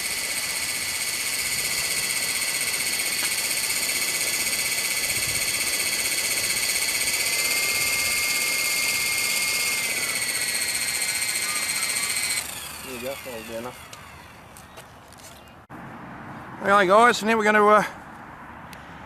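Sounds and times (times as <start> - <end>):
high-pitched electric motor whine: 0.0 - 14.7.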